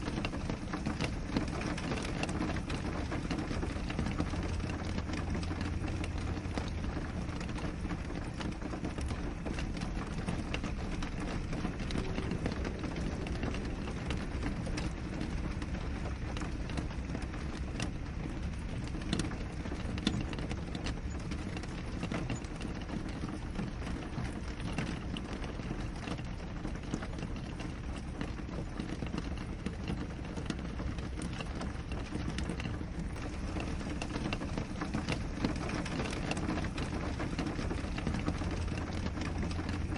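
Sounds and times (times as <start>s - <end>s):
rain on a window: 0.0s - 39.9s
raindrops tapping: 0.0s - 39.9s.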